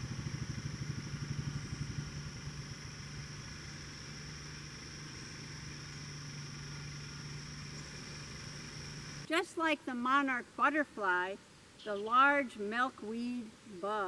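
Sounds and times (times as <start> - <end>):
engine droning: 0.0 - 9.3.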